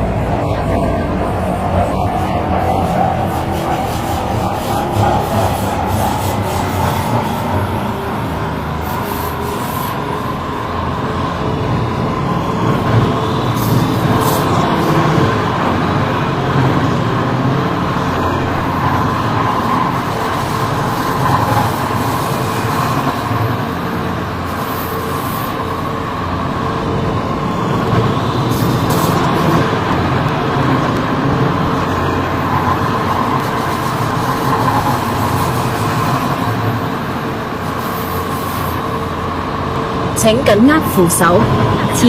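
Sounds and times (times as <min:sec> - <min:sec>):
train wheels rumbling on track: 0:00.0 - 0:42.0.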